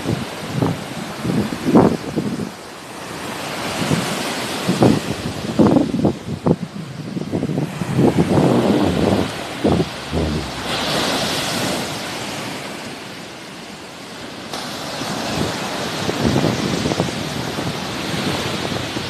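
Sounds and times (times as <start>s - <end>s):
wind buffeting microphone: 5.2s - 11.9s
sea waves washing on shore: 6.8s - 13.6s.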